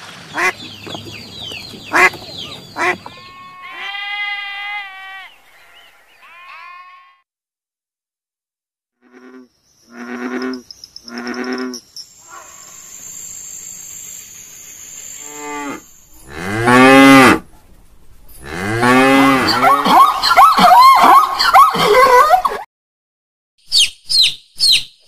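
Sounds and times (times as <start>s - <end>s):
short bleats: 2.8s - 7.2s
cow mooing: 3.1s - 7.2s, 15.2s - 17.4s, 18.4s - 19.8s.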